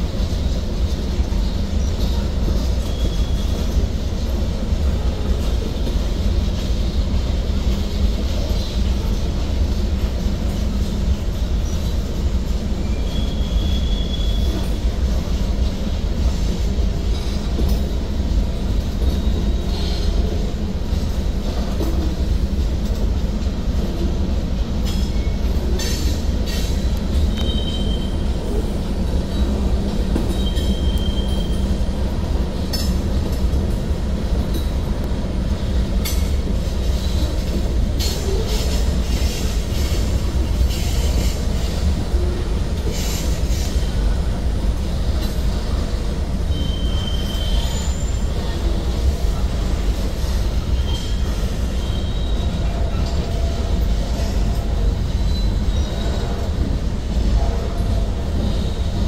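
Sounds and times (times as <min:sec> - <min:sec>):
train wheels rumbling on rails: 0:00.0 - 0:59.0
high-pitched wheel squeals: 0:12.8 - 0:14.8, 0:27.3 - 0:28.2, 0:30.3 - 0:31.6, 0:46.5 - 0:48.3.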